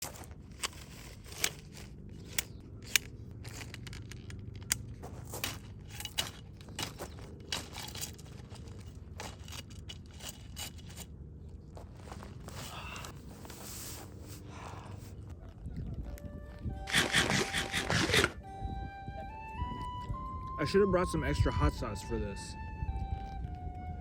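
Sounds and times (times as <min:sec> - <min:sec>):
food wrapping crinkling and tearing: 0:03.4 - 0:05.0.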